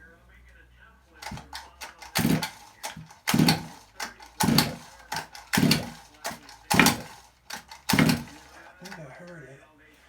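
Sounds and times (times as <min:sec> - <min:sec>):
recoil starter pulls: 0:01.2 - 0:09.1
two-stroke engine cranking: 0:01.2 - 0:09.1.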